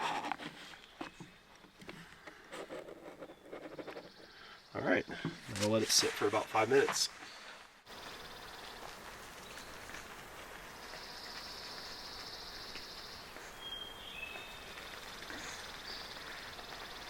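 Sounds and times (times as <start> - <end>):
insect trilling: 7.9 - 17.0.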